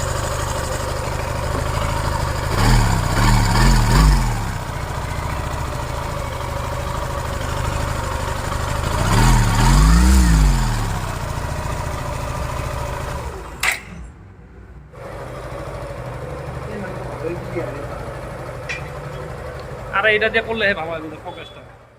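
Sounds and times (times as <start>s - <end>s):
motorcycle engine idling: 0.0s - 14.0s, 15.0s - 21.9s
sharp click: 13.6s - 14.1s.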